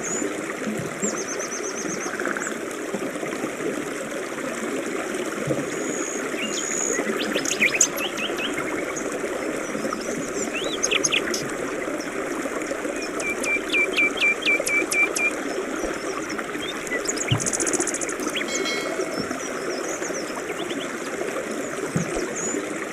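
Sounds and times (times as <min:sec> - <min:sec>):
river running: 0:00.0 - 0:22.9
songbirds calling: 0:05.8 - 0:12.2, 0:12.9 - 0:21.0
buzzy bird trill: 0:17.1 - 0:19.6.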